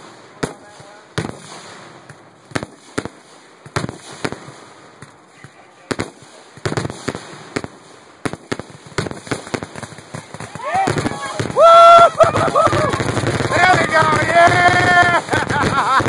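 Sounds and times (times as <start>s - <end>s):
fireworks bursting: 0.0s - 16.0s
fireworks crackle: 0.0s - 16.0s.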